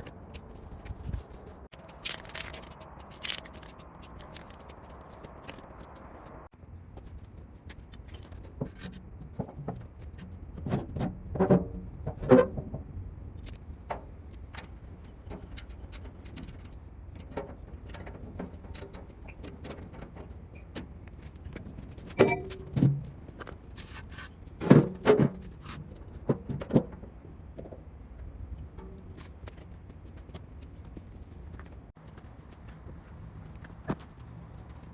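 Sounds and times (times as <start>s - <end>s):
low steady hum: 22.0s - 23.7s
metal tools clanking: 22.2s - 22.9s.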